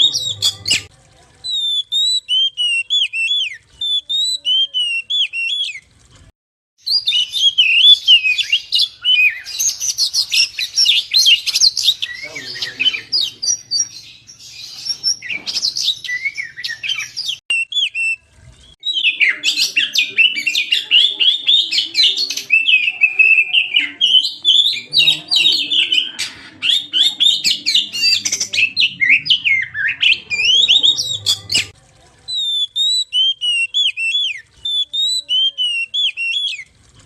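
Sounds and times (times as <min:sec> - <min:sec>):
songbird singing: 0:00.0 - 0:00.9, 0:06.8 - 0:36.7.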